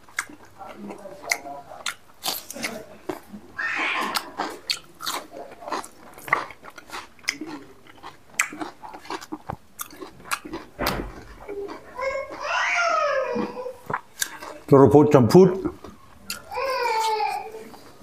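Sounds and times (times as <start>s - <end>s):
man chewing: 0.0s - 12.6s, 13.2s - 14.8s, 15.6s - 18.0s
wet mouth clicks and smacks: 4.1s - 5.2s, 8.4s - 11.5s.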